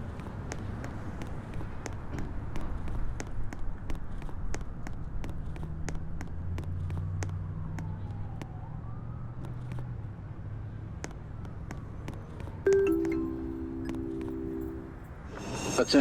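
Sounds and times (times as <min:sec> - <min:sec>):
distant siren: 0:07.4 - 0:09.8.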